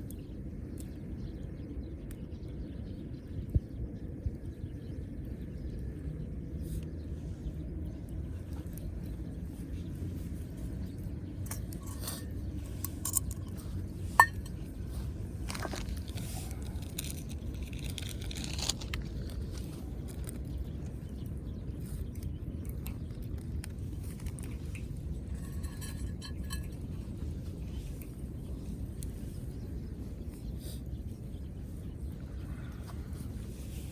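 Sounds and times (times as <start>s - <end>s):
steady low rumble: 0.0s - 33.9s
metal cookware clinking: 14.2s - 14.5s.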